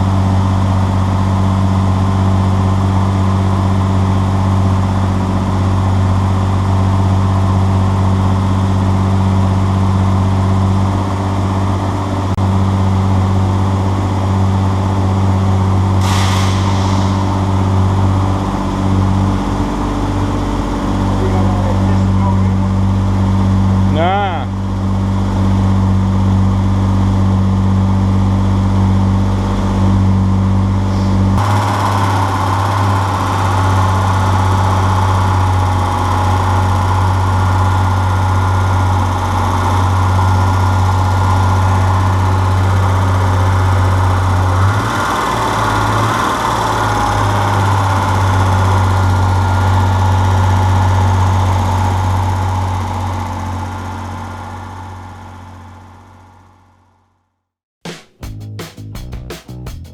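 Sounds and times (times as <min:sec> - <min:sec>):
car engine idling loud: 0:00.0 - 0:57.0
hiss: 0:16.0 - 0:18.5.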